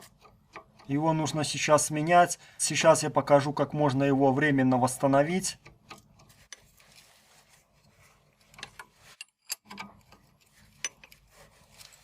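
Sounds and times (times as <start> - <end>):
metallic tool clicks and taps: 0.1 - 1.0, 5.5 - 6.6.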